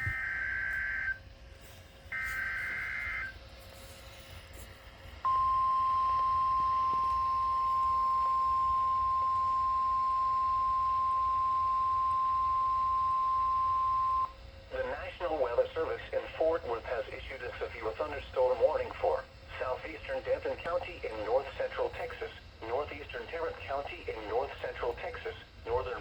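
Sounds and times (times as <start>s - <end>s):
screeching digital data bursts: 0.0s - 1.2s, 2.2s - 3.4s
steady alarm tone: 0.0s - 1.3s, 2.1s - 4.4s, 5.2s - 14.3s.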